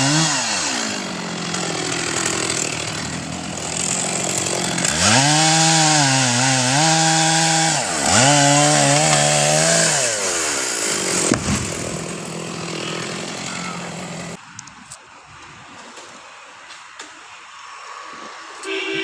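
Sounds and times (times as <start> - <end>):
chainsaw revving: 0.0 - 14.4
sharp crack: 11.2 - 12.1.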